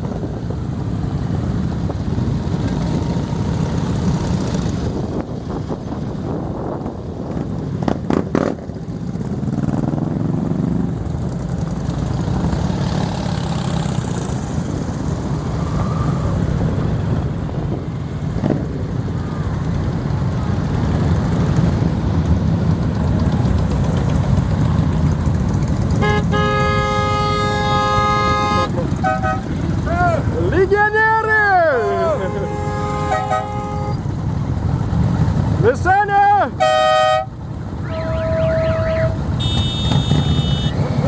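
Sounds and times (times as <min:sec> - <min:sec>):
motorcycle engines idling: 0:00.0 - 0:41.0
motorcycle engine revving: 0:07.3 - 0:17.2, 0:36.6 - 0:41.0
horn sounding: 0:25.9 - 0:30.0, 0:31.7 - 0:34.2, 0:36.5 - 0:41.0.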